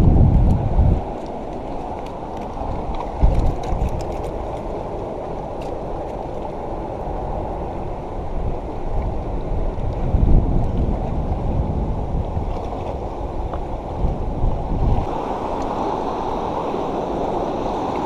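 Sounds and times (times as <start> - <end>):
wind rushing: 0.0 - 1.2, 7.2 - 18.0
water rushing: 0.0 - 18.0
wind buffeting microphone: 0.0 - 18.0.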